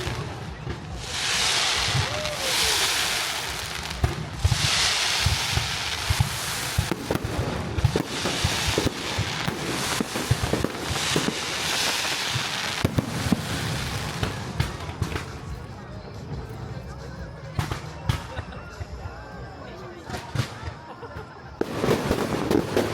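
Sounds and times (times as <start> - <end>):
steady hiss: 0.0 - 17.9
fireworks bangs and pops: 0.0 - 19.0, 20.0 - 22.9.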